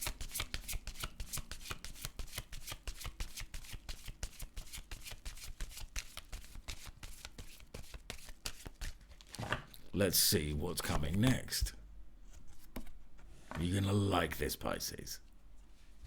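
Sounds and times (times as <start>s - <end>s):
cards being shuffled: 0.0s - 9.8s.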